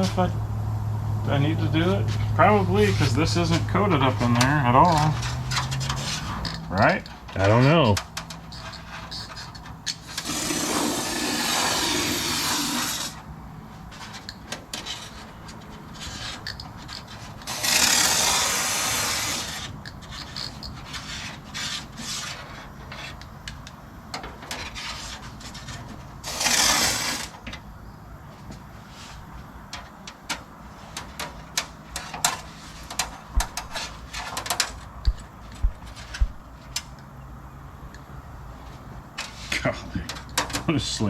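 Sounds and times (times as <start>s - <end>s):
spray paint can hissing: 10.1s - 13.2s.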